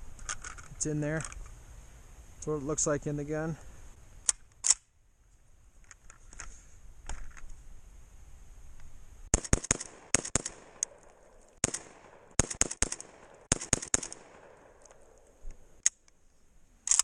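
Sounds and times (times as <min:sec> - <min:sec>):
shotgun shots: 0:09.3 - 0:15.2
sharp clicks: 0:09.3 - 0:16.2.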